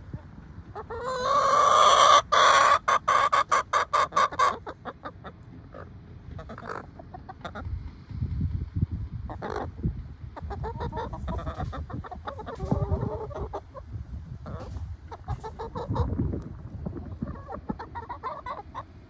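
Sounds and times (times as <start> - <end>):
chickens clucking: 0.0 - 7.9, 9.2 - 19.0
chicken long rising call: 0.8 - 4.6.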